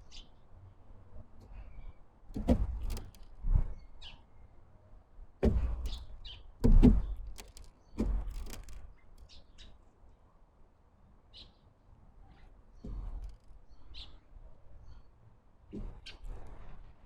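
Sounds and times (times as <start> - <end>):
dull knocks on wooden feeder: 5.4 - 8.8.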